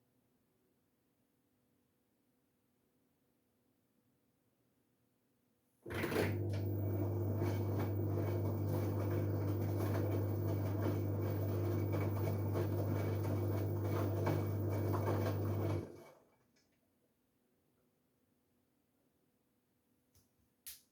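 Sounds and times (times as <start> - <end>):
washing machine motor hum: 5.9 - 16.4.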